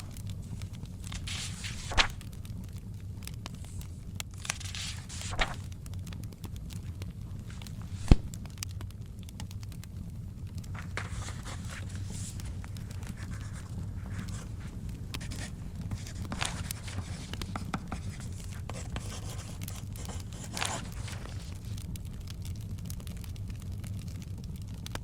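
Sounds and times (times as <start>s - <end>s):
book pages turning: 0.0s - 2.4s, 3.3s - 5.8s, 7.4s - 8.5s, 10.6s - 22.0s
wood fire crackling: 0.0s - 25.0s.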